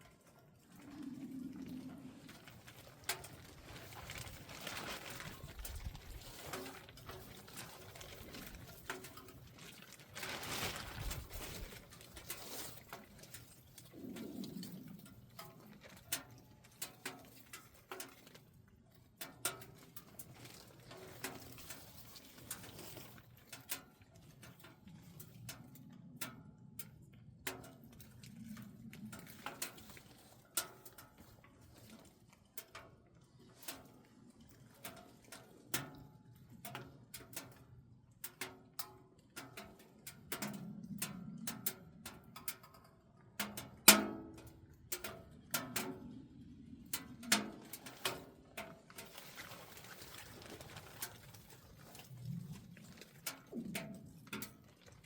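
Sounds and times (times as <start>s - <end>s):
firewood crackling in stove: 0.0s - 55.0s
low cooing: 0.7s - 2.8s.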